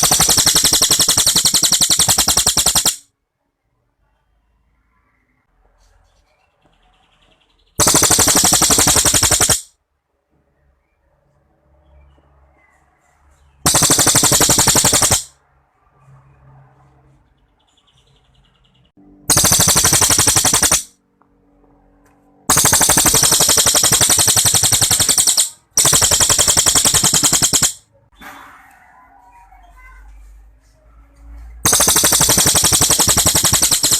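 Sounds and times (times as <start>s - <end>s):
songbird rattling trills: 0.0s - 3.0s, 7.7s - 9.7s, 13.7s - 15.3s, 19.3s - 20.9s, 22.5s - 27.8s, 31.7s - 33.9s.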